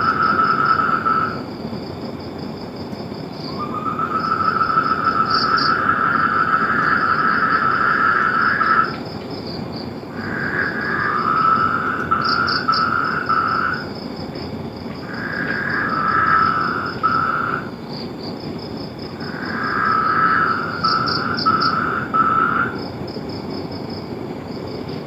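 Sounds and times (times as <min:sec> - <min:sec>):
long pulsed animal trills: 0:19.2 - 0:22.9.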